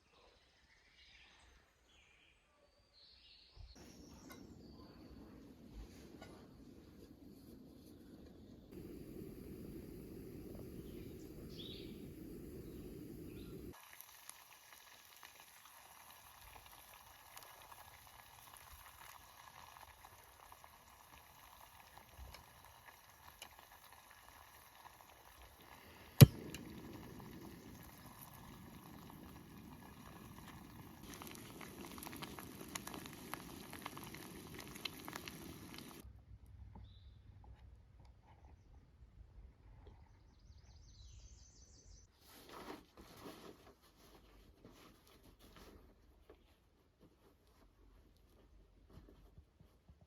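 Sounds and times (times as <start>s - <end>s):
pot bubbling and sizzling: 8.7s - 36.0s.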